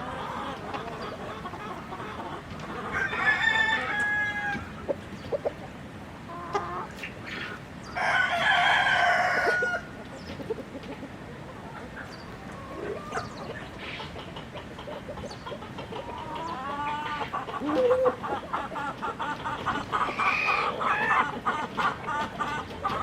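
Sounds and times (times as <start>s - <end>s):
chickens clucking: 0.0s - 23.0s
rooster crowing: 2.9s - 4.7s, 8.0s - 9.9s.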